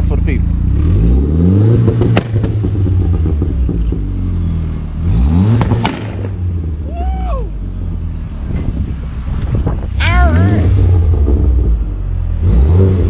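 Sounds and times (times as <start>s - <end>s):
car engine revving: 0.0s - 13.0s
sharp exhaust cracks: 1.8s - 4.2s, 5.2s - 6.6s.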